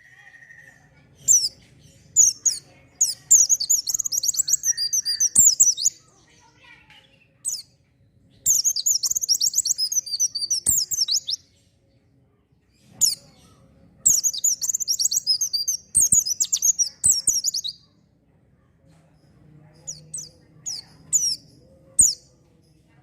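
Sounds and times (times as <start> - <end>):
bird singing fast high twitters: 1.2 - 6.5, 7.4 - 7.7, 8.3 - 11.5, 12.8 - 17.9, 19.7 - 22.4.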